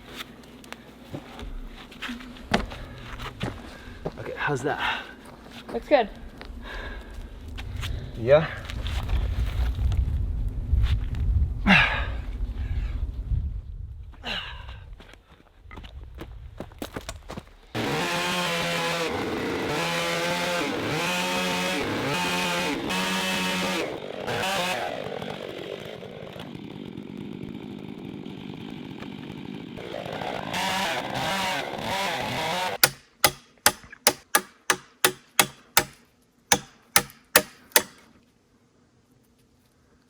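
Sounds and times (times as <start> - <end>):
chainsaw running: 17.8 - 38.0
sharp knocks: 32.8 - 38.0.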